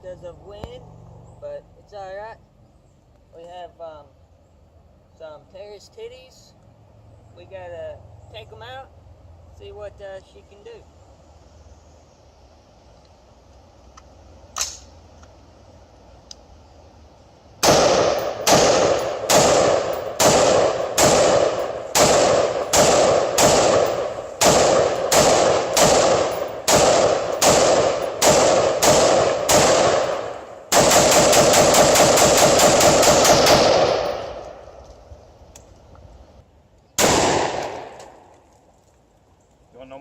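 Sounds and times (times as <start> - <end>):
rifle firing shots: 17.6 - 34.7, 37.0 - 38.3.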